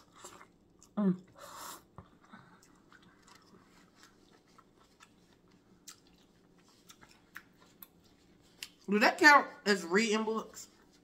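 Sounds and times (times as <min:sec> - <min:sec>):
wet mouth clicks chewing: 0:02.6 - 0:08.0.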